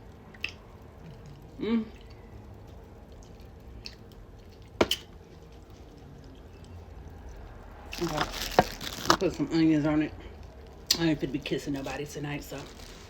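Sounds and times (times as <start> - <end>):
chewing and lip smacking: 0.1 - 7.6.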